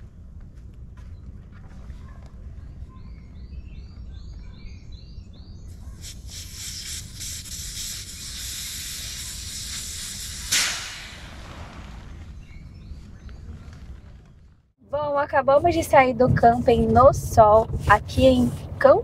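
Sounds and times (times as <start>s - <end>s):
steady hiss: 5.7s - 11.8s
loud bang: 10.4s - 12.1s
low steady rumble: 10.6s - 19.0s.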